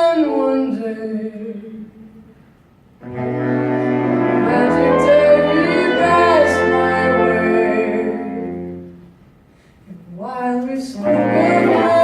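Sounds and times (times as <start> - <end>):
band with horns holding chord: 3.0 - 9.2, 11.0 - 12.0.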